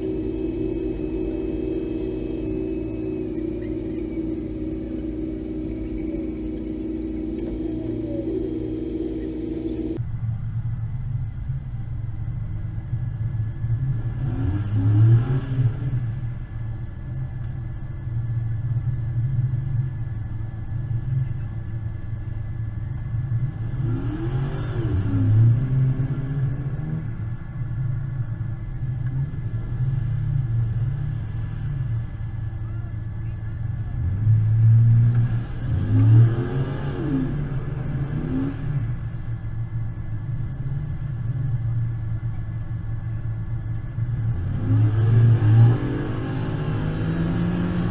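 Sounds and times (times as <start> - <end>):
off-road vehicle engine revving: 0.0 - 10.0, 33.6 - 42.2, 43.7 - 47.9
vehicle engine running: 0.0 - 14.2.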